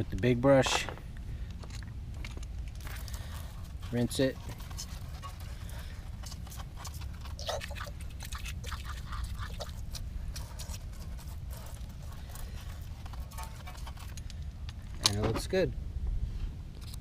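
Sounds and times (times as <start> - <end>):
steady low rumble: 0.0 - 17.0
scrubbing and squeaks on wheel: 2.8 - 15.5
water spatter: 6.8 - 12.6.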